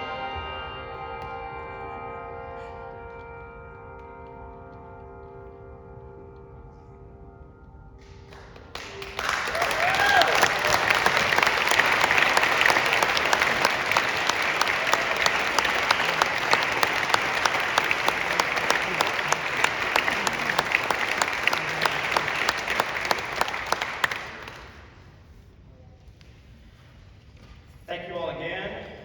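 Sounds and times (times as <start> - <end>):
audience applauding: 8.3 - 25.0.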